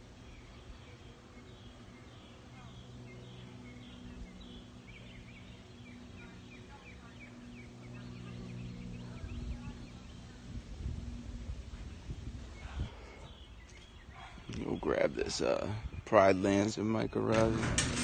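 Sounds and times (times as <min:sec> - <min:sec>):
steady low drone: 0:00.0 - 0:13.7
birds chirping: 0:00.0 - 0:18.0.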